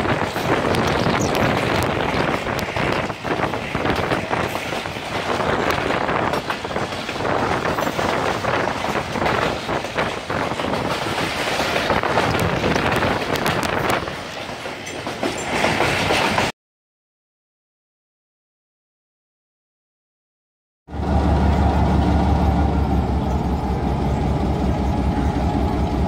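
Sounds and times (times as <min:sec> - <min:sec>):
train rushing noise: 0:00.0 - 0:16.5, 0:20.9 - 0:26.0
wheels clattering over rail joints: 0:00.0 - 0:16.5.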